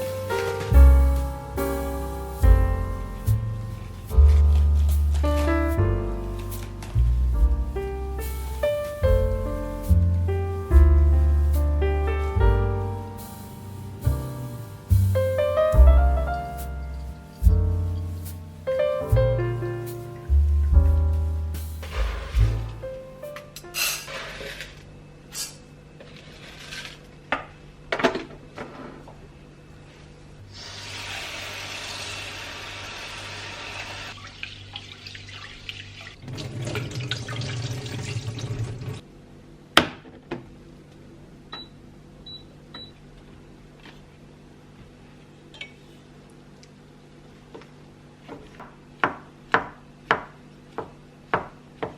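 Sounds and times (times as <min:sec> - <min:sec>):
tap water running into sink: 0:34.2 - 0:39.0.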